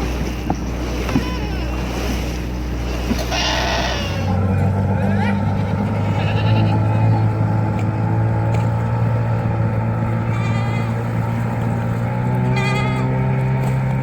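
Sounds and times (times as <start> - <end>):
boat engine drone: 0.0 - 14.0
goats bleating: 1.1 - 1.9, 3.2 - 4.4, 5.0 - 7.3, 10.2 - 11.3.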